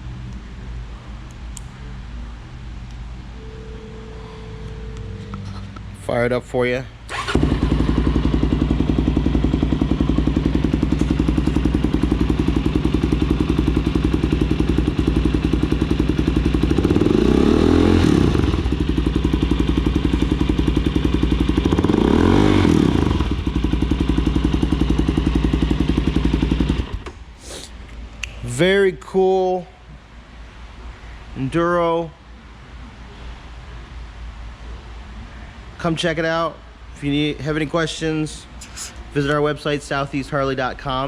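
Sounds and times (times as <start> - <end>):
motorcycle engine idling and revving: 7.1 - 27.1.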